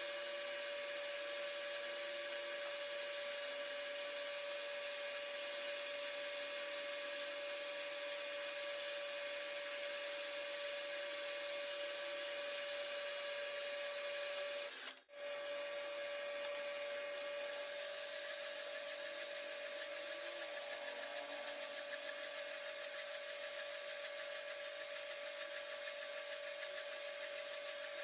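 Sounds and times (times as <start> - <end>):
machine tool whining: 0.0 - 28.0.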